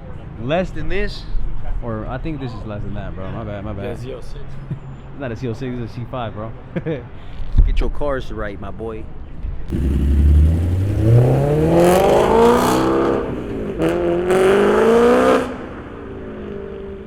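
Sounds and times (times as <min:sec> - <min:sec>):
car engine accelerating: 0:09.7 - 0:15.7.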